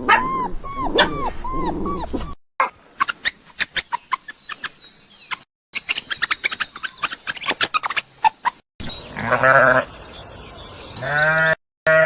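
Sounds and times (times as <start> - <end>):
dog whimpering: 0.0 - 2.4.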